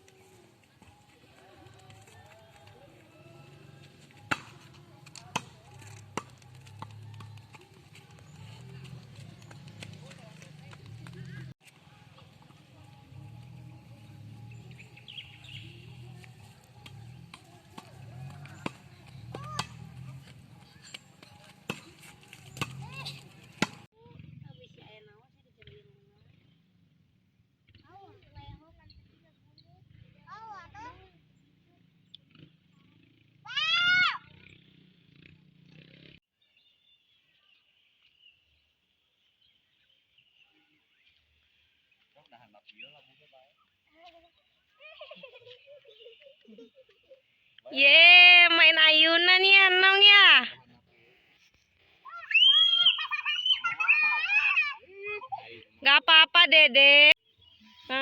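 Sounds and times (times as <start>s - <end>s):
birds chirping: 7.2s - 24.9s, 35.7s - 50.4s, 51.2s - 58.0s.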